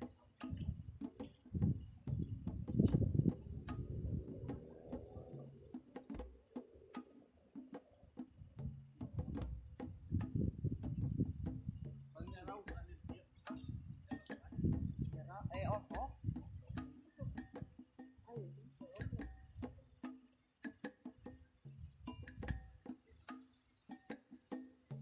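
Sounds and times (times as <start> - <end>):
insects trilling: 0.0 - 25.0
low rustling thumps: 0.5 - 6.3.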